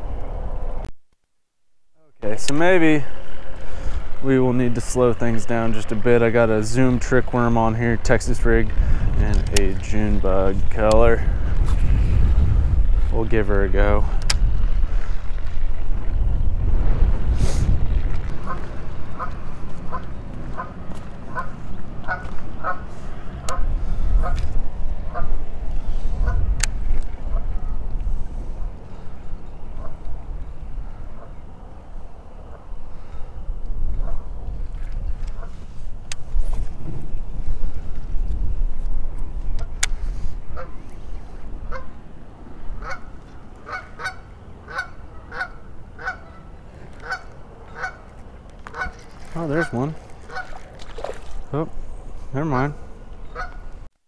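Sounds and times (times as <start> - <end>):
wind rumble on microphone: 0.0 - 0.9, 2.4 - 53.9
goose honking: 18.4 - 23.6, 42.8 - 50.6, 52.4 - 53.7.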